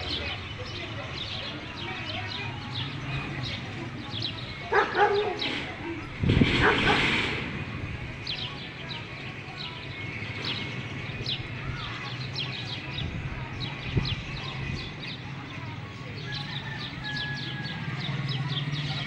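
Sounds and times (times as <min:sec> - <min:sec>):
birds chirping: 0:00.0 - 0:19.0
loud noisy burst: 0:05.4 - 0:08.1.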